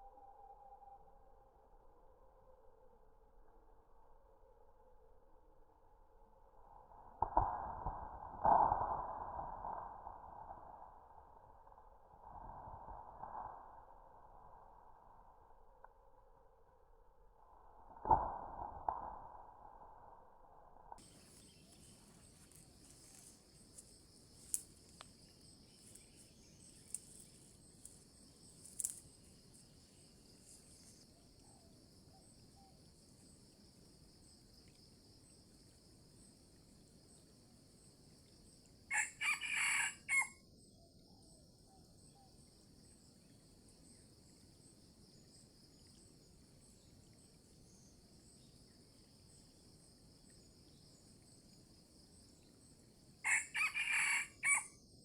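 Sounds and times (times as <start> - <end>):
rooster crowing: 38.9 - 40.3, 53.2 - 54.7.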